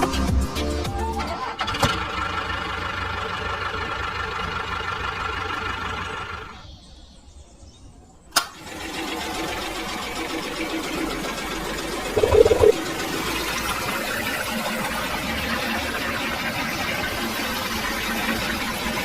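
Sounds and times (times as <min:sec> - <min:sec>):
music: 0:00.0 - 0:01.5.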